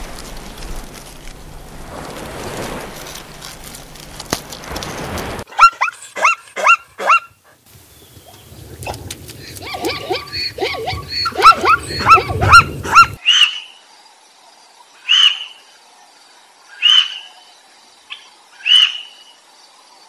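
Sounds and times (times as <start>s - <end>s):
zebras calling: 8.2s - 13.5s.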